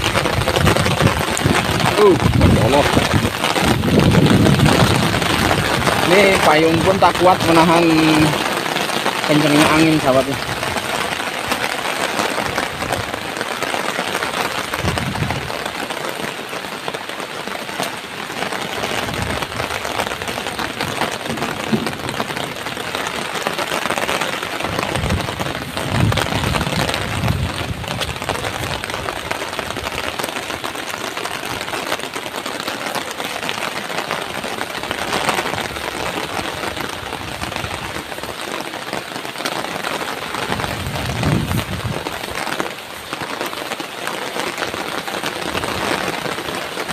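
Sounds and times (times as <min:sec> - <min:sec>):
wind gusts on microphone: 0:00.0 - 0:08.5, 0:14.6 - 0:15.8, 0:18.9 - 0:30.6, 0:40.2 - 0:43.2
heavy rain on an umbrella: 0:00.0 - 0:46.9.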